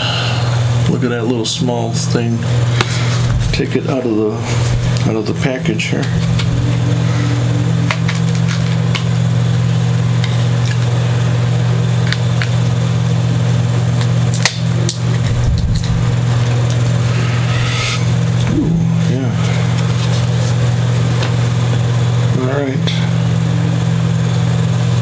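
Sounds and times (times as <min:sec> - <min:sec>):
low machine hum: 0:00.0 - 0:25.0
plastic package handling: 0:07.8 - 0:09.2.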